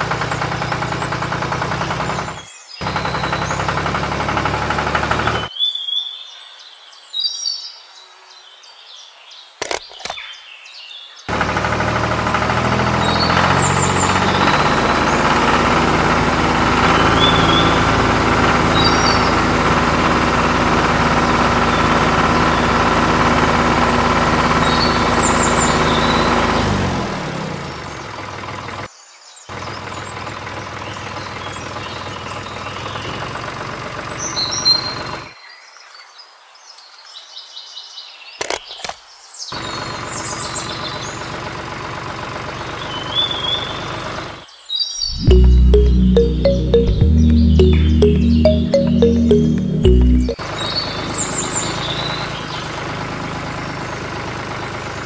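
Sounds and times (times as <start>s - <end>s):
small engine running: 0.0s - 5.5s, 11.3s - 28.9s.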